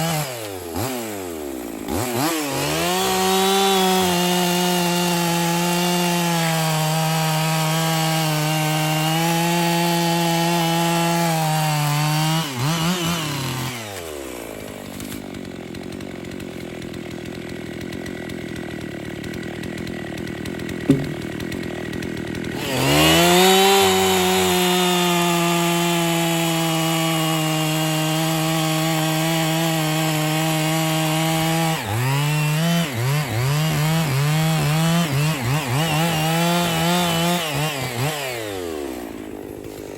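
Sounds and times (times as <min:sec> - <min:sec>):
chainsaw cutting log: 0:00.0 - 0:39.9
chainsaw idling: 0:00.0 - 0:39.9
sharp knock: 0:20.9 - 0:21.5.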